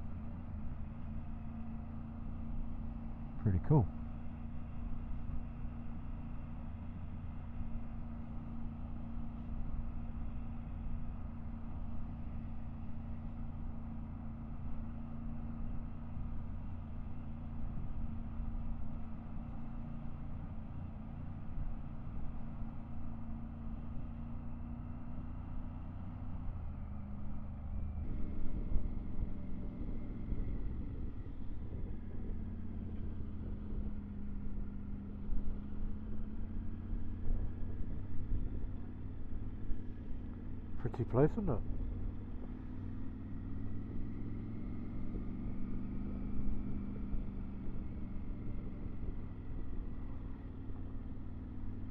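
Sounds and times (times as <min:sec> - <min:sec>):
motorcycle engine cruising: 0:00.0 - 0:51.9
low wind rumble: 0:27.6 - 0:40.9.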